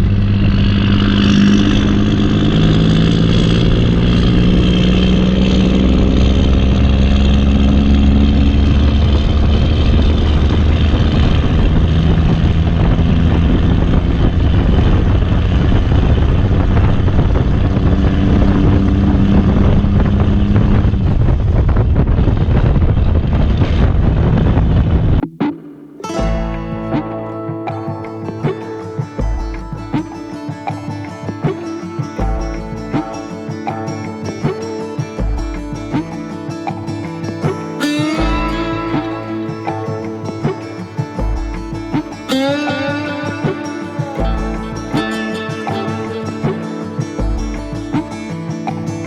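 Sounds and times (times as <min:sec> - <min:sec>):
diesel engine running: 0:00.0 - 0:22.2.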